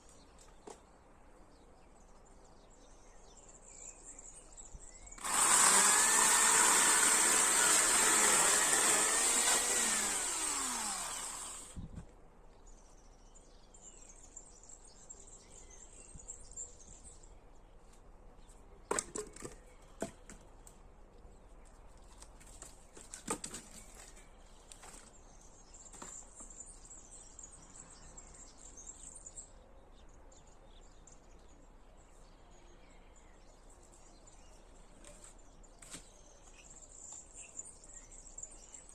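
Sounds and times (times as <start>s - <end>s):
chainsaw running: 5.2s - 11.8s.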